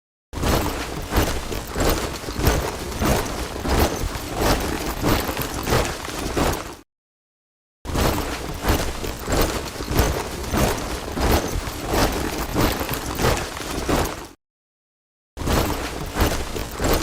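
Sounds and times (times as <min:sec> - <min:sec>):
soldiers marching in step: 0:00.6 - 0:06.8, 0:08.2 - 0:14.4.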